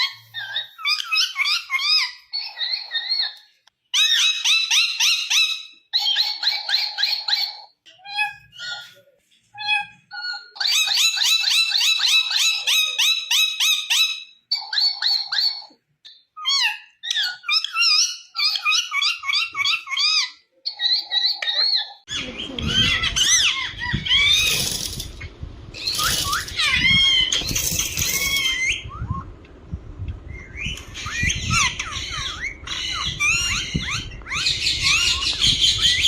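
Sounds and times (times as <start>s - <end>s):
parakeet squawking: 0.0s - 9.0s, 16.4s - 25.0s, 25.8s - 28.9s, 30.6s - 36.0s
rough rumbling background noise: 22.2s - 36.0s.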